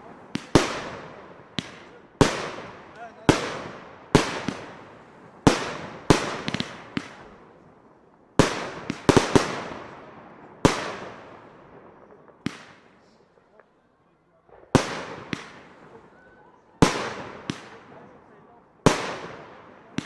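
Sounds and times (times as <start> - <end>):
small firework pops: 0.3 - 0.9, 1.5 - 3.4, 5.5 - 7.4, 12.1 - 13.8, 14.6 - 16.0, 16.8 - 18.0.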